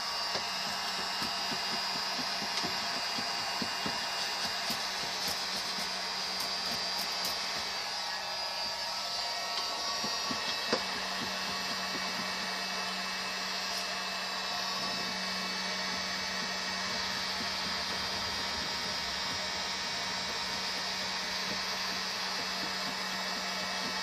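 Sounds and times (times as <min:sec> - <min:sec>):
electric blower running: 0:00.0 - 0:24.0.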